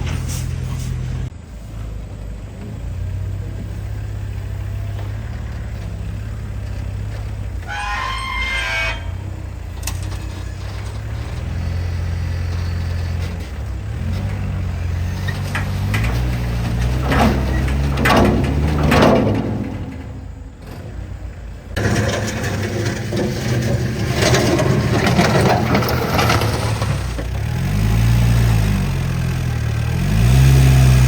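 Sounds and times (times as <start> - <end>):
truck engine revving: 0.0 - 31.0.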